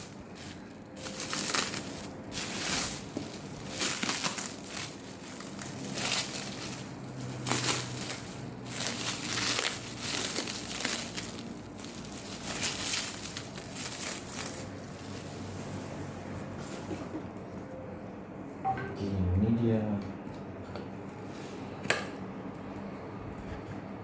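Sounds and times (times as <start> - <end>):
packing material crinkling: 0.0 - 16.6.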